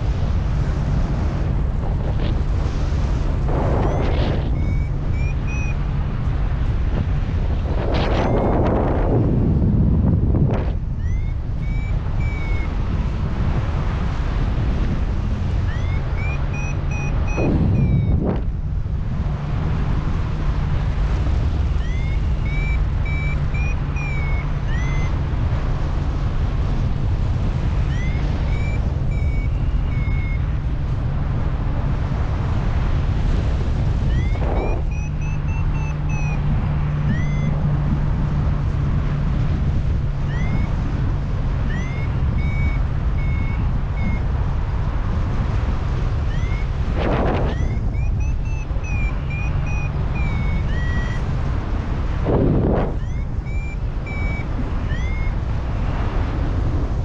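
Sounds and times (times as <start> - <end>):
strong wind on microphone: 0.0 - 57.0
short high beeps: 3.8 - 6.0, 8.1 - 8.7, 11.0 - 12.8, 15.6 - 18.5, 21.8 - 25.2, 27.8 - 30.6, 34.0 - 38.0, 40.2 - 41.0, 41.6 - 44.3, 46.2 - 51.3, 52.5 - 55.4.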